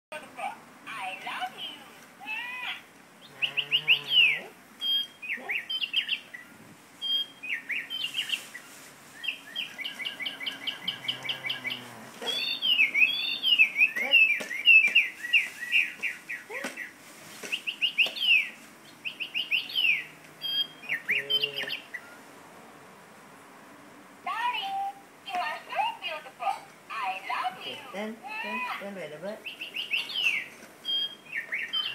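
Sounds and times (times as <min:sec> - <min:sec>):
bird chirping and trilling: 0:02.7 - 0:22.2, 0:29.4 - 0:31.9.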